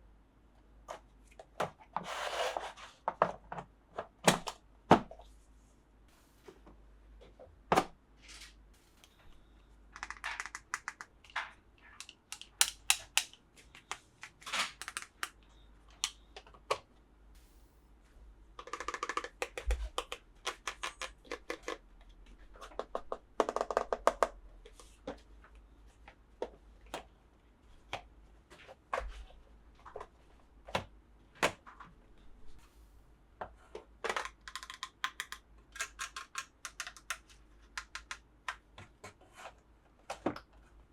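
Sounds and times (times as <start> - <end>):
plastic toy pieces clicking: 10.0 - 11.4, 12.0 - 16.2, 18.6 - 21.8, 34.1 - 38.2.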